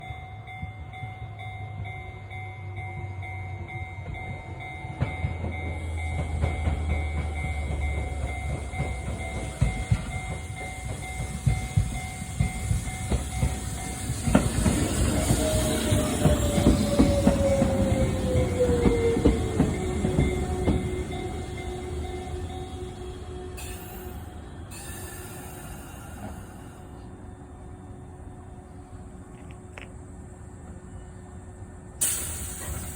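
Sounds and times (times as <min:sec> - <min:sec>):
crossing warning bell ringing: 0:00.0 - 0:28.2
train whine: 0:00.0 - 0:32.9
train wheels clacking: 0:04.0 - 0:24.1.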